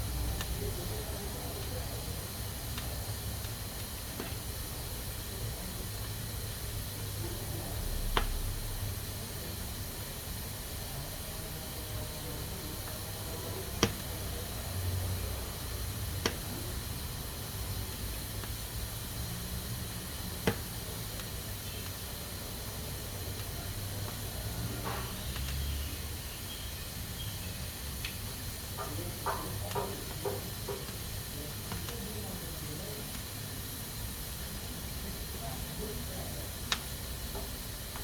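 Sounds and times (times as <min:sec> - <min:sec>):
pressure cooker steam hiss: 0:00.0 - 0:38.0.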